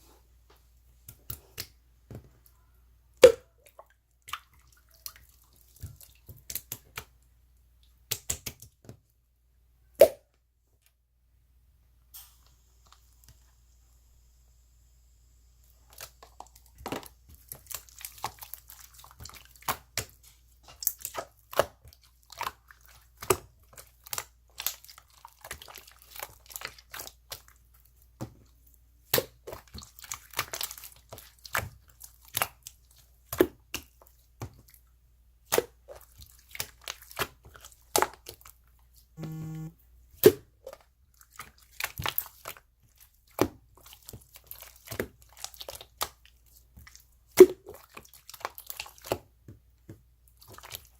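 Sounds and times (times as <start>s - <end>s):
low buzzing tone: 39.2s - 39.8s.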